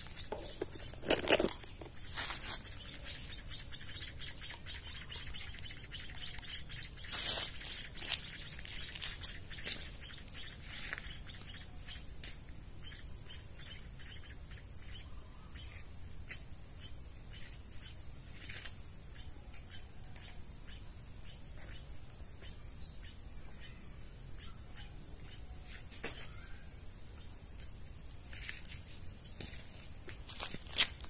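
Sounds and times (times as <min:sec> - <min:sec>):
chicks chirping: 0:00.0 - 0:12.0.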